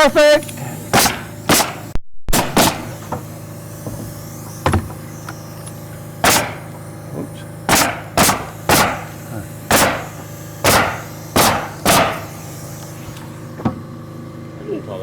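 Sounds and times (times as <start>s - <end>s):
nail gun shots into plywood: 0.9s - 3.3s, 6.2s - 6.8s, 7.7s - 12.5s.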